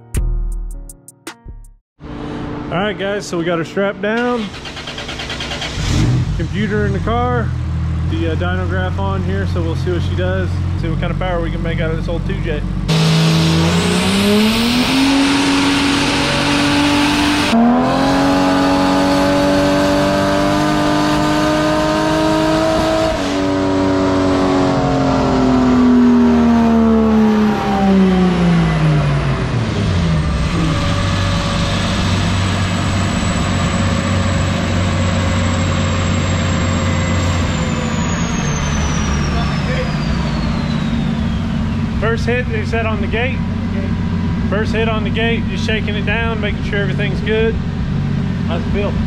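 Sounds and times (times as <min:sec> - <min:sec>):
engine idling: 0:04.2 - 0:13.0, 0:29.3 - 0:49.0
turbocharged engine revving: 0:04.2 - 0:49.0.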